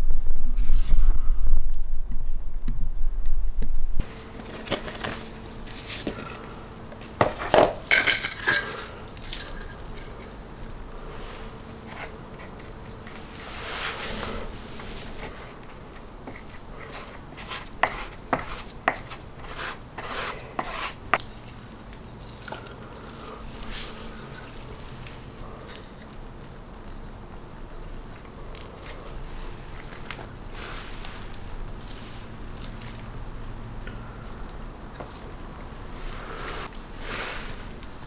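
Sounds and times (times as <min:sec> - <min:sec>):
low rumble: 0:00.0 - 0:04.1
faint steady hum: 0:00.0 - 0:38.0
objects clicking and clattering: 0:04.5 - 0:10.8.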